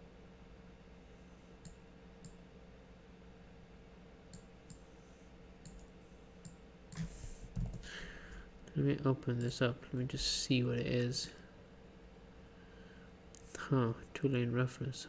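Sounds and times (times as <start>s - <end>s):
faint room hum: 0.0s - 15.0s
computer mouse clicks: 1.6s - 2.4s, 4.3s - 4.9s, 5.6s - 7.8s.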